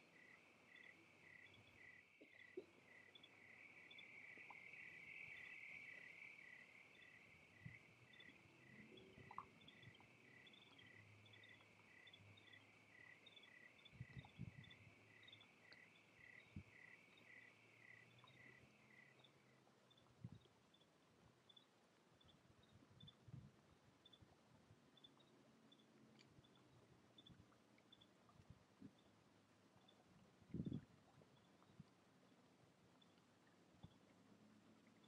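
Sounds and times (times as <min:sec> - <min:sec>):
insect chorus buzzing: 0:00.0 - 0:19.3
higher insect chirps: 0:00.0 - 0:19.5.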